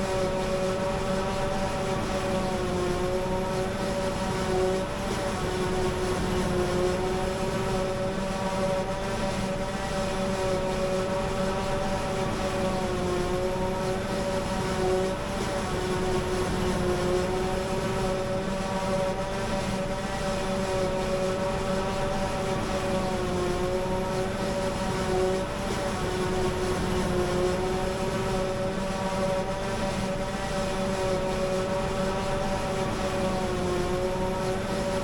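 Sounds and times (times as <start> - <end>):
machine whine: 0.0 - 35.0.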